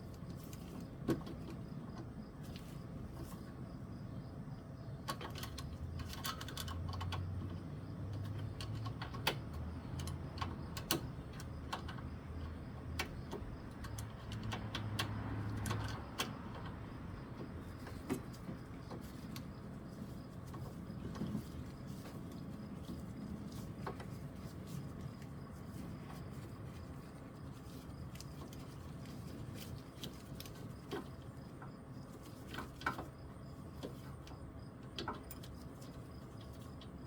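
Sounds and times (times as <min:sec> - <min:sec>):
small metal tools clicking: 0:05.1 - 0:07.4.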